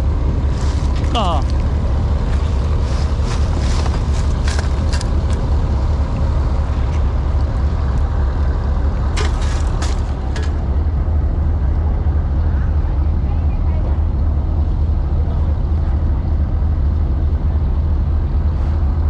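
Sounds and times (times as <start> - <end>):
wind and running noise: 0.0 - 11.4
low engine rumble: 0.0 - 19.0.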